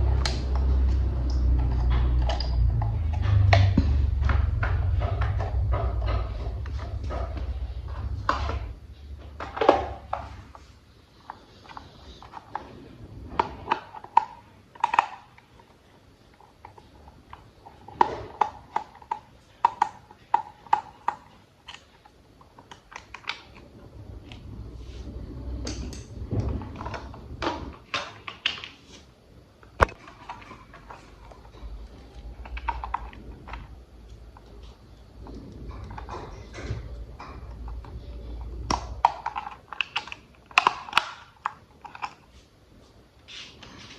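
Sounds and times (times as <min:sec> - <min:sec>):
low handling rumble: 0:00.0 - 0:09.5
plastic toy parts clicking: 0:37.2 - 0:42.3.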